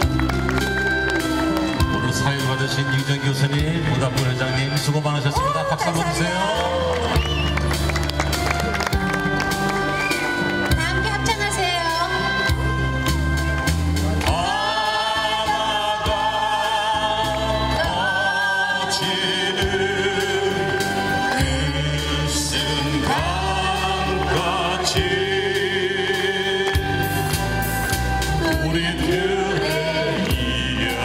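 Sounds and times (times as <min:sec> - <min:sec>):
slow backing music: 0:00.0 - 0:31.0
voices singing with vibrato: 0:14.2 - 0:31.0.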